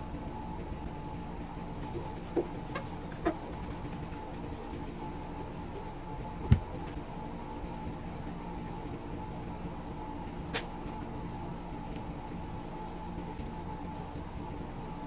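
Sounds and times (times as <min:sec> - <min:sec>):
knocks from handling: 0:06.4 - 0:07.0.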